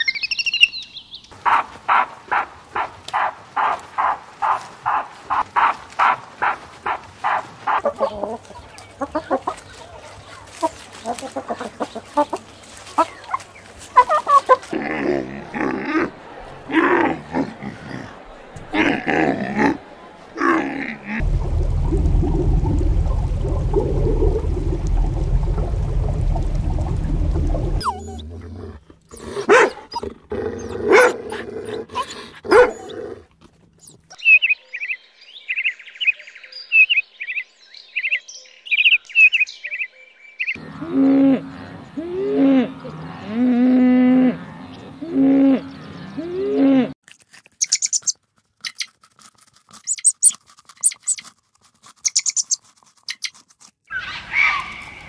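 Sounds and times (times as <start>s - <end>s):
low rumbling noise: 21.2s - 28.8s.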